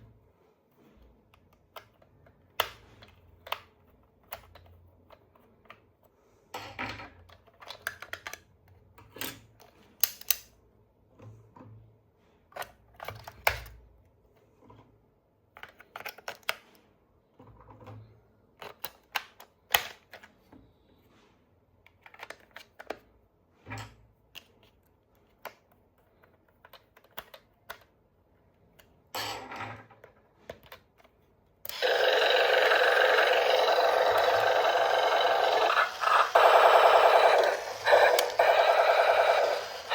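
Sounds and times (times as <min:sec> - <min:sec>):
plastic toy parts clicking: 0:01.4 - 0:05.9, 0:07.2 - 0:10.5, 0:15.5 - 0:16.6, 0:25.3 - 0:27.9, 0:31.7 - 0:39.9
loud steady sound: 0:31.7 - 0:39.9.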